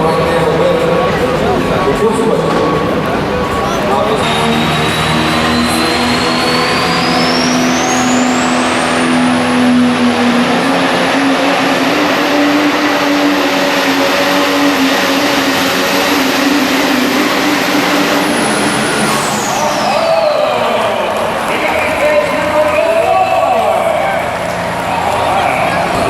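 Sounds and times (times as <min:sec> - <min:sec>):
diesel truck engine at full throttle: 0:00.0 - 0:26.0
turbocharger whine: 0:00.0 - 0:26.0.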